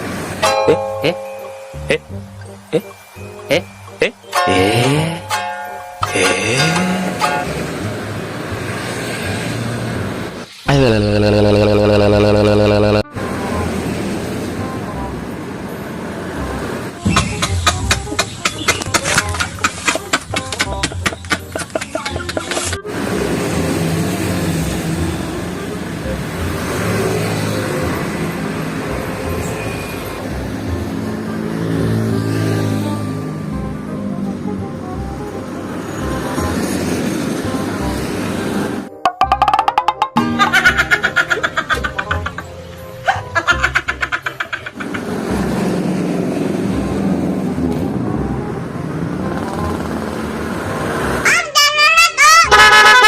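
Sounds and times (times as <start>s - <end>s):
large vehicle engines humming: 0.0s - 39.7s, 40.4s - 53.0s
road noise: 0.0s - 53.0s
indistinct voices: 10.6s - 13.1s
rhythmic percussive music: 17.0s - 22.6s, 38.9s - 42.5s.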